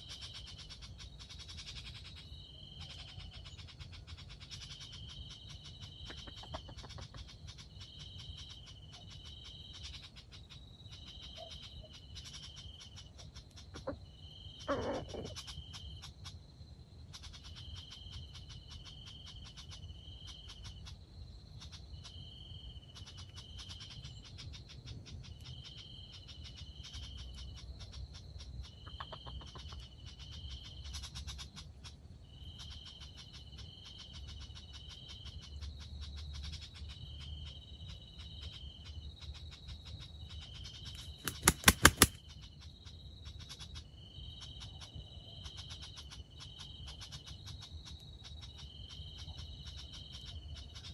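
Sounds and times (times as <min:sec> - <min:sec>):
insects chirping: 0:00.0 - 0:50.9
loud sharp clicks: 0:41.0 - 0:42.2.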